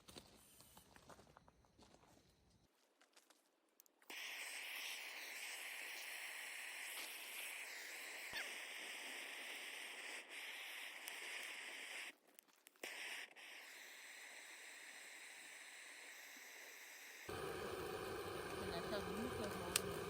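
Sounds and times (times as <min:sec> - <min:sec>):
faint outdoor background hiss: 0:09.8 - 0:20.0.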